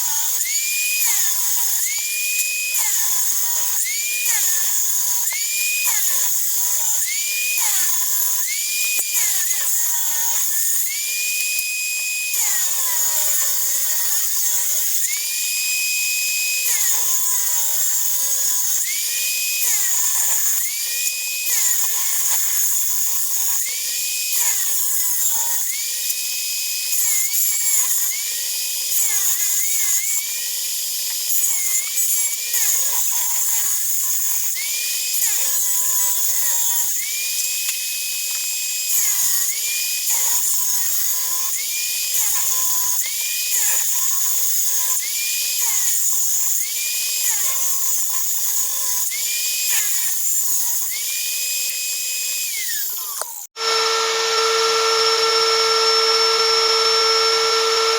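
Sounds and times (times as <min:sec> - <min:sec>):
power saw cutting wood: 0:00.0 - 0:57.9.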